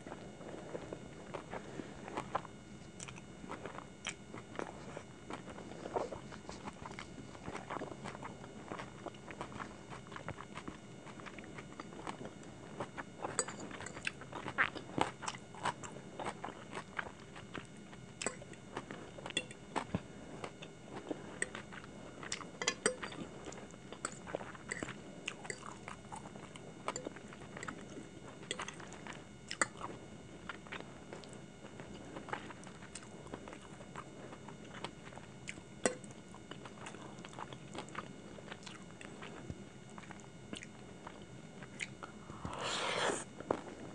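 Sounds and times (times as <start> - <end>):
chewing food: 0.0 - 43.9.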